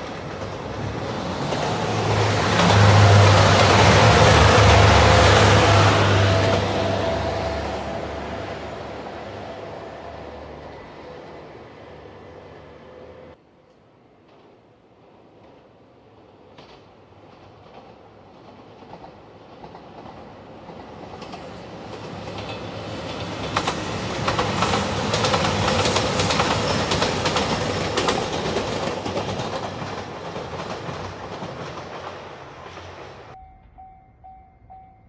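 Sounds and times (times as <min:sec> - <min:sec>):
diesel train engine: 0:00.0 - 0:13.5, 0:16.0 - 0:35.0
wheels clattering over rail joints: 0:16.6 - 0:33.4.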